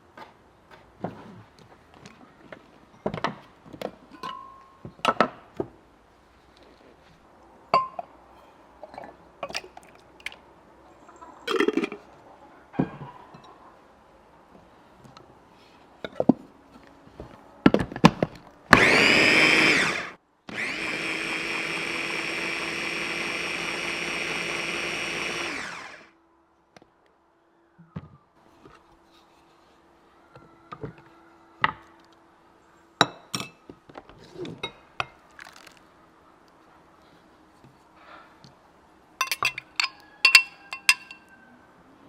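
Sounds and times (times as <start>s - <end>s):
kitchen appliance motor running: 18.7s - 26.1s
kitchenware clicks and knocks: 39.2s - 41.2s.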